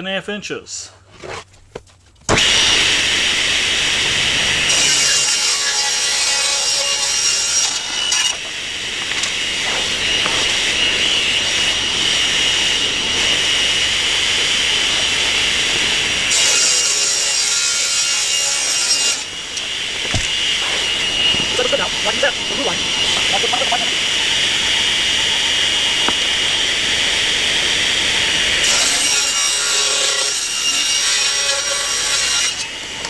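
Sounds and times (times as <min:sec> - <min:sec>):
saw blade cutting wood: 0:02.3 - 0:33.0
table saw whining: 0:02.3 - 0:33.0.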